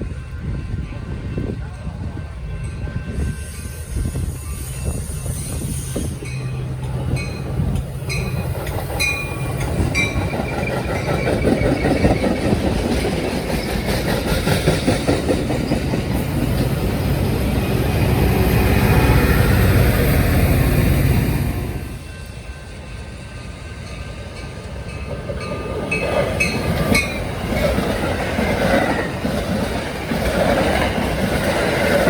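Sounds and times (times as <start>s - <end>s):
rumble of passing train cars: 0.0s - 32.0s
wheels clicking over rail joints: 6.2s - 18.2s, 24.4s - 32.0s.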